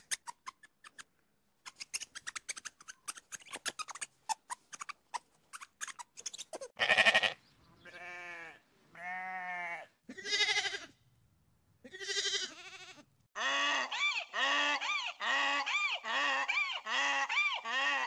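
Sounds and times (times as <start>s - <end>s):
animal calls: 13.4s - 18.0s.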